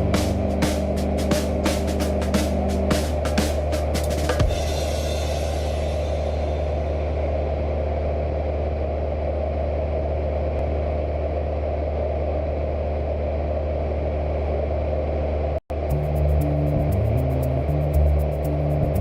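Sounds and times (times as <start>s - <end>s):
music: 0.0s - 7.2s, 15.8s - 19.0s
light aircraft engine droning: 0.0s - 19.0s.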